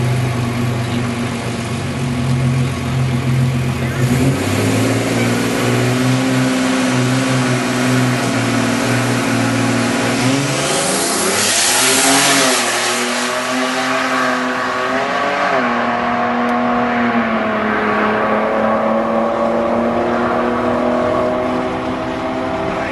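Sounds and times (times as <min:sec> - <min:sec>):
car engine running: 0:00.0 - 0:22.9
turbo rushing surge: 0:03.3 - 0:22.9.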